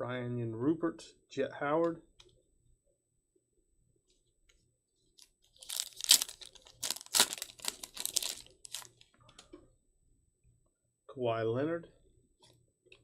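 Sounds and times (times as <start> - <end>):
wrapper tearing and crinkling: 5.6 - 9.0.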